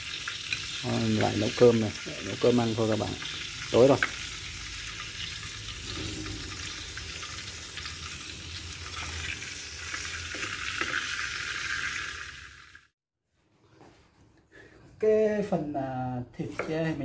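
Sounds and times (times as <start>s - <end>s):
meat sizzling in oil: 0.0s - 12.9s
small crackles of frying: 0.0s - 12.9s.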